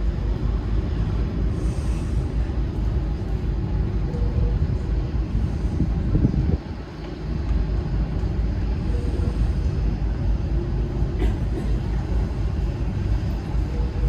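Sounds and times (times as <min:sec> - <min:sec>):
wind buffeting microphone: 0:00.0 - 0:11.2
ship low rumble: 0:00.0 - 0:14.0.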